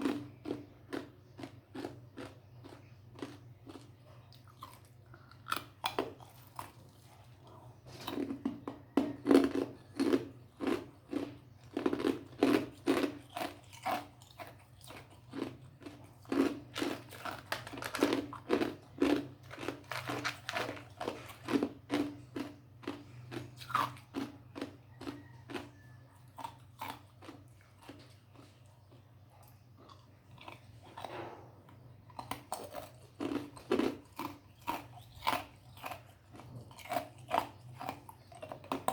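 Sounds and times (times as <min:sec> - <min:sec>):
person crunching ice: 0:14.9 - 0:23.9.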